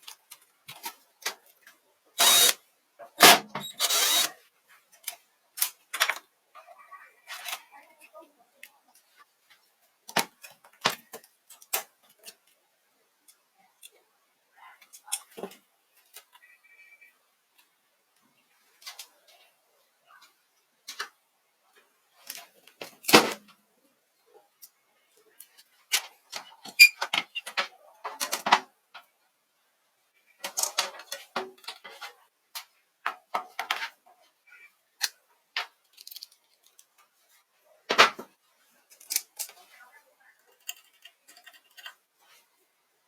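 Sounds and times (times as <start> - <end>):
tools clicking and knocking: 40.6 - 42.0.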